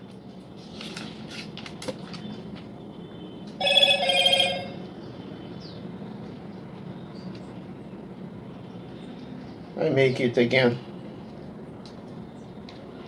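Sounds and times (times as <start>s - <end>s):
warbling electronic ringing tone: 3.6s - 4.8s.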